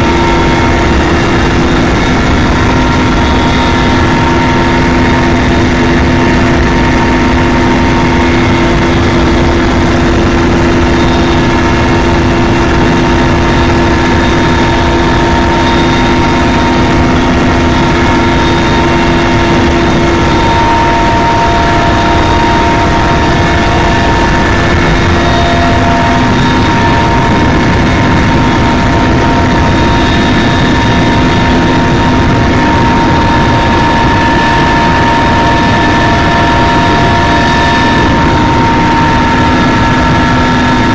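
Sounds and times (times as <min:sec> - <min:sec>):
helicopter engine and rotor: 0:00.0 - 0:40.9.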